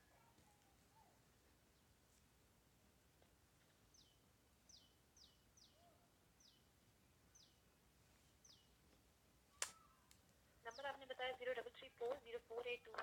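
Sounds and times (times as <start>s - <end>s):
small bird chirping: 3.9s - 6.7s, 7.3s - 7.7s, 8.4s - 8.9s.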